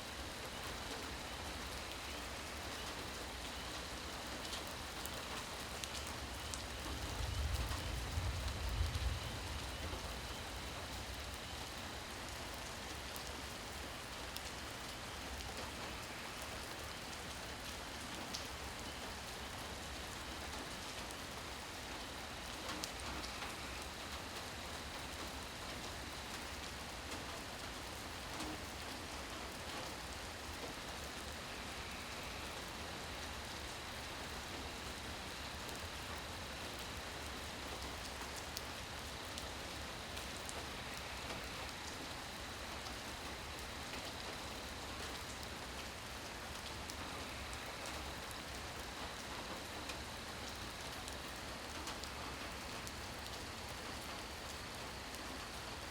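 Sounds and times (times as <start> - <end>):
rain falling: 0.0 - 55.9.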